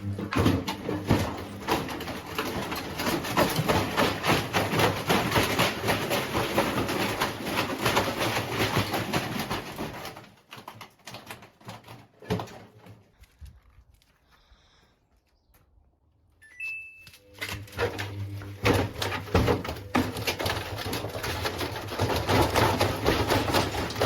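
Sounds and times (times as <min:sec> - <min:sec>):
washing machine rattling and knocking: 0:00.0 - 0:12.8, 0:17.6 - 0:24.0.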